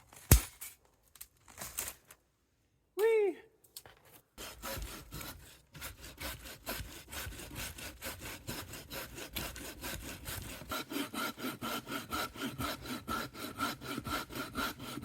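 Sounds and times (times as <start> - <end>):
handsaw cutting wood: 4.4 - 15.0.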